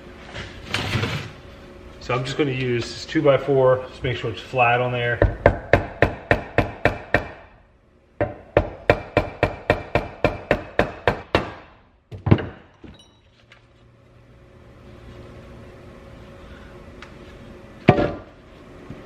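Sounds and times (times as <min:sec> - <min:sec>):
hammer striking wood block: 0:05.2 - 0:07.5, 0:08.2 - 0:12.6.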